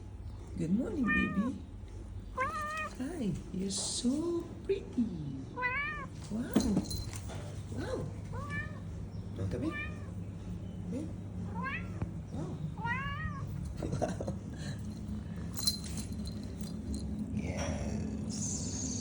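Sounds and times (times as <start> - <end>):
cat meowing: 1.0 - 1.6, 2.3 - 3.0, 5.6 - 6.2, 8.3 - 9.0, 9.6 - 10.2, 11.5 - 12.1, 12.8 - 13.6.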